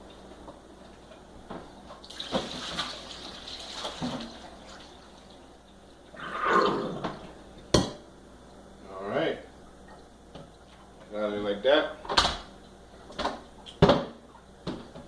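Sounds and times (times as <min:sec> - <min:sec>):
water running in sink: 0:02.0 - 0:06.2.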